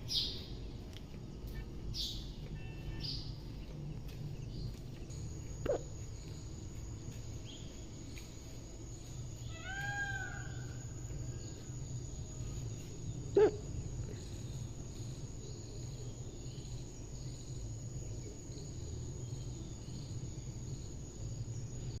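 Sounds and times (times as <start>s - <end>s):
steady low hum: 0.0s - 22.0s
faint high chirping: 1.4s - 17.6s
peacock call: 9.5s - 10.8s.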